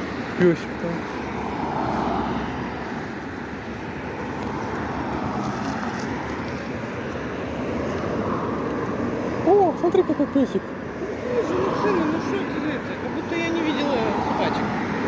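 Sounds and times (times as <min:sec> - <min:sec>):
cars passing on a road: 0:00.0 - 0:15.0.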